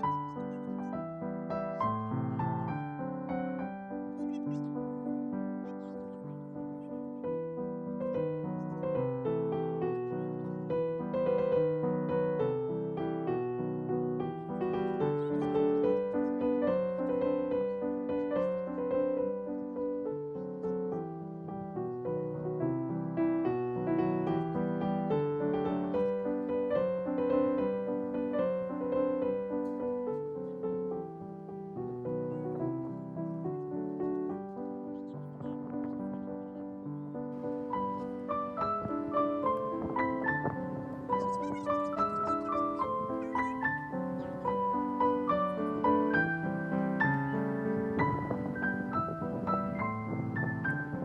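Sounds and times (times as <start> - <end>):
piano music: 0.0 - 51.0.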